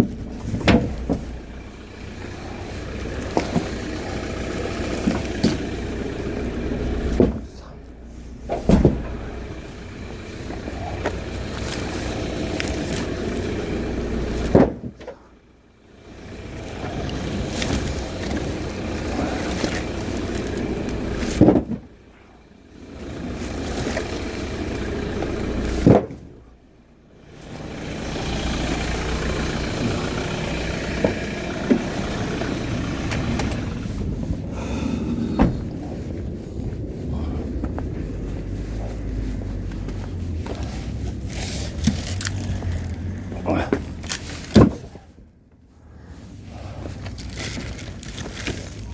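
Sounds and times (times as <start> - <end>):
heavy thumps: 0.0 - 12.1, 12.7 - 15.3, 17.2 - 22.0, 24.1 - 26.4, 28.9 - 36.8
steady car noise: 0.0 - 48.9.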